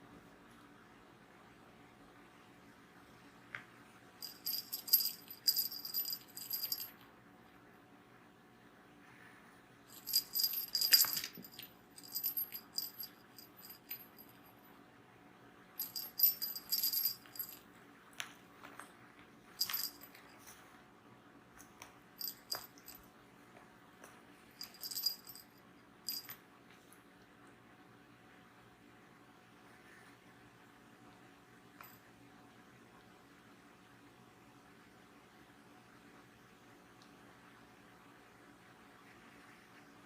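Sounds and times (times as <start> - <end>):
cat toy bell jingling: 4.2 - 6.9, 9.9 - 14.5, 15.8 - 17.6, 19.6 - 20.2, 22.2 - 23.0, 24.6 - 25.5, 26.1 - 26.4.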